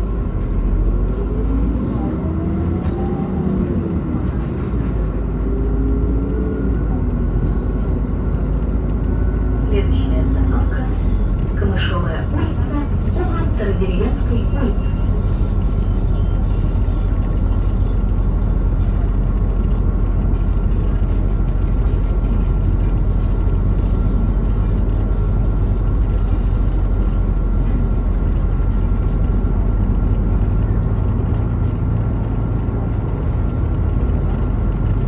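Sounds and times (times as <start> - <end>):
bus engine rumble: 0.0 - 35.0
road noise: 0.0 - 35.0.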